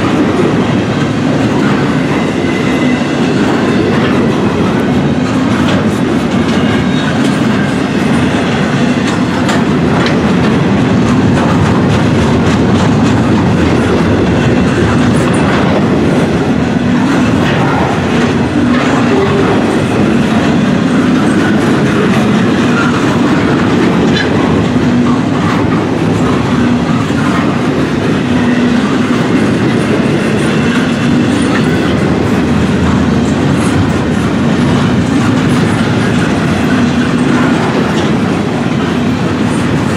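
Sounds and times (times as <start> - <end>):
train wheels rumbling on rails: 0.0 - 39.9
wheels clicking over rail joints: 0.0 - 39.9.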